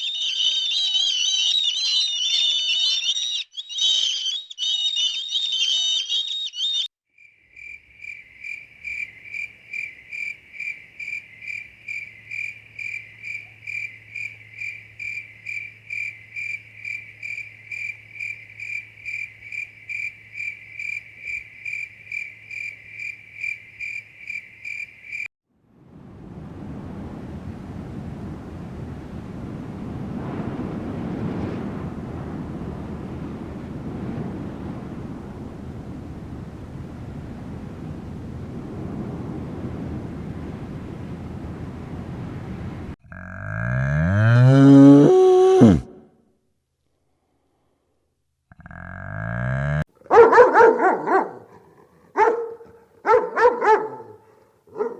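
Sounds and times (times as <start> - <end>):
bird singing: 0.0 - 6.9
insect chirping: 0.0 - 25.3
wind noise: 25.7 - 43.0.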